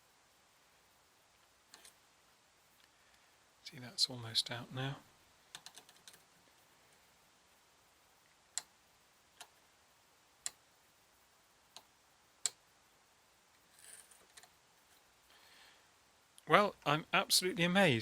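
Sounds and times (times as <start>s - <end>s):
faint rustle: 13.5s - 15.9s.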